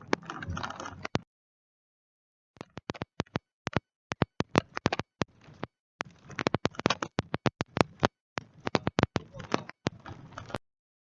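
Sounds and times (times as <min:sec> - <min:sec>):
sharp clicks and taps: 0:02.6 - 0:10.0.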